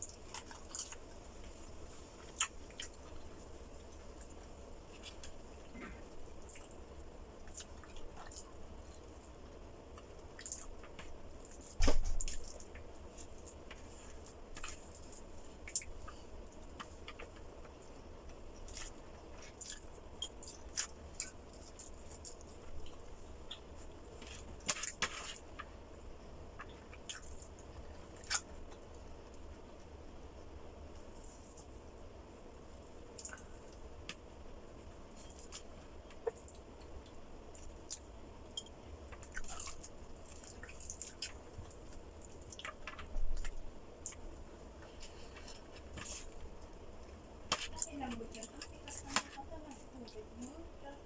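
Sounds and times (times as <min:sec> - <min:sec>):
person chewing: 0:00.0 - 0:06.8, 0:07.4 - 0:09.1, 0:09.9 - 0:25.7, 0:26.6 - 0:28.8, 0:35.1 - 0:46.6.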